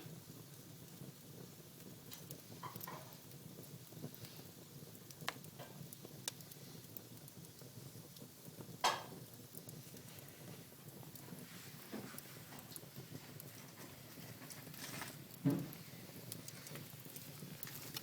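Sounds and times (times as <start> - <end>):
fire crackles and pops: 0.0 - 18.0
flames hissing: 0.0 - 18.0.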